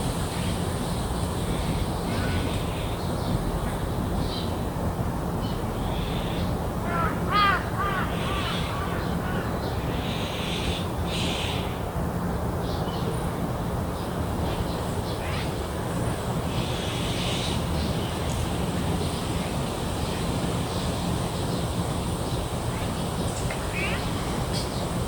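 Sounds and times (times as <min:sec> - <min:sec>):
faint high insect-like hum: 0:00.0 - 0:11.9, 0:12.6 - 0:25.0
distant city traffic rumble: 0:00.0 - 0:25.0
birds calling: 0:01.4 - 0:03.5, 0:05.4 - 0:11.8, 0:14.4 - 0:25.0.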